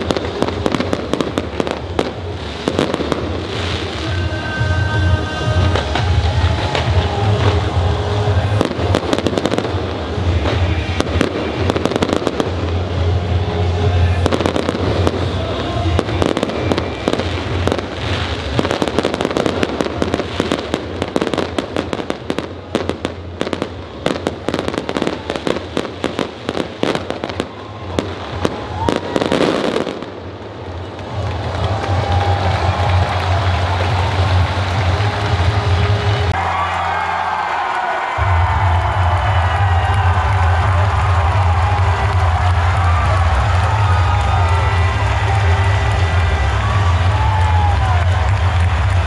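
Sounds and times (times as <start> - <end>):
music: 0.0 - 49.0.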